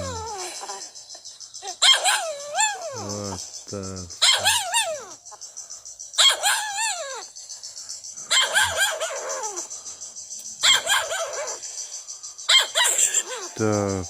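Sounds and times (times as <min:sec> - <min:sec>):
parrot yelping like a dog: 0:00.0 - 0:00.8, 0:01.6 - 0:03.1, 0:04.2 - 0:05.2, 0:06.2 - 0:07.2, 0:08.3 - 0:09.6, 0:10.6 - 0:11.6, 0:12.5 - 0:13.6.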